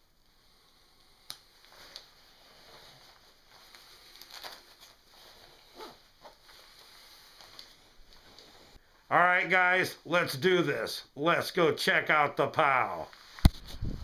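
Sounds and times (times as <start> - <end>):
clothing rustling: 0.5 - 8.9
soft ticks and scuffs: 0.6 - 8.8.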